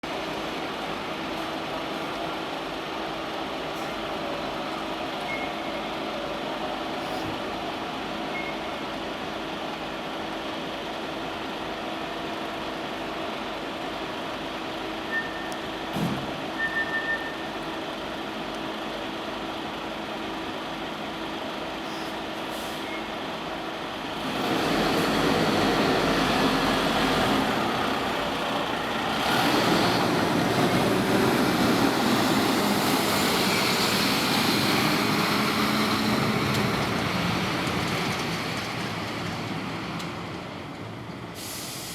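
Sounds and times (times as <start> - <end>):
diesel engine running: 17.8 - 41.9.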